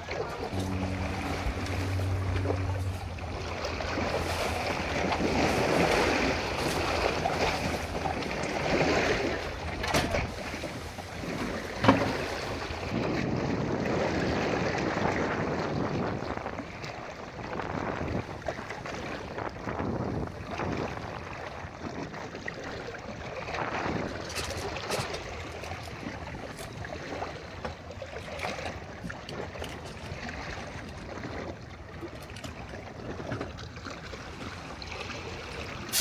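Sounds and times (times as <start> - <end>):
sea water splashing: 0.0 - 13.0, 23.3 - 36.0
wind buffeting microphone: 0.0 - 13.7.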